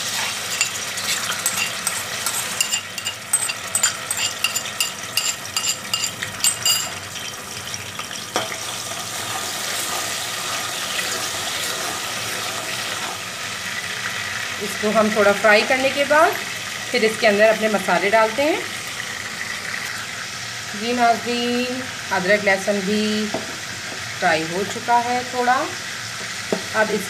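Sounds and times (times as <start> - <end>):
paste sizzling in hot oil: 0.0 - 14.6.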